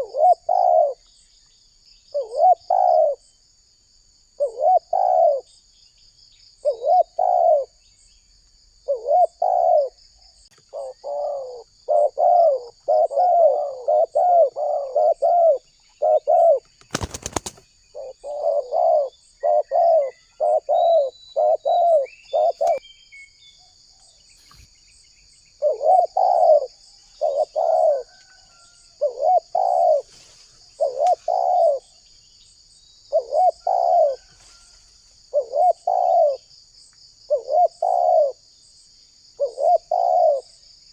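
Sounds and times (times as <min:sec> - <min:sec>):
dove cooing: 0:00.0 - 0:01.1, 0:02.1 - 0:03.2, 0:04.4 - 0:05.5, 0:06.6 - 0:07.8, 0:08.8 - 0:10.0, 0:10.6 - 0:22.8, 0:25.6 - 0:32.0, 0:33.1 - 0:34.4, 0:35.3 - 0:36.5, 0:37.3 - 0:38.4, 0:39.4 - 0:40.6
high buzz of insects: 0:00.0 - 0:40.9.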